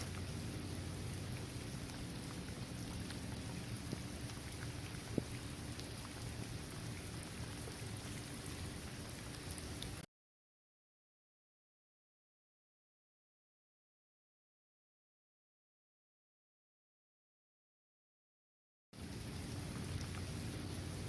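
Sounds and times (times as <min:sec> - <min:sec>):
sharp water drip: 0:00.0 - 0:10.1, 0:19.0 - 0:21.0
steady rain falling: 0:00.0 - 0:10.1, 0:19.0 - 0:21.0.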